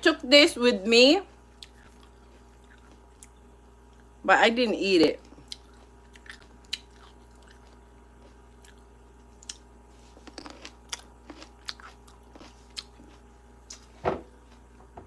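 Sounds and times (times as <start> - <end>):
person chewing food: 1.5 - 4.2, 5.3 - 14.0
small crunches and clicks: 9.4 - 13.9.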